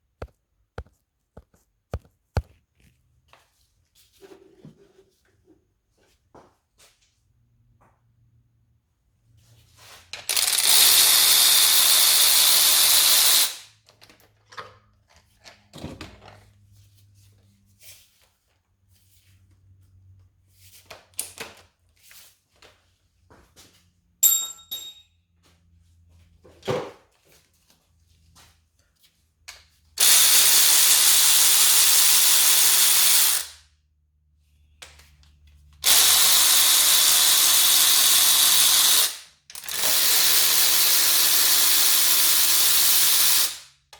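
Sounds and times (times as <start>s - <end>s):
power tool running: 10.3s - 13.6s, 35.8s - 43.6s.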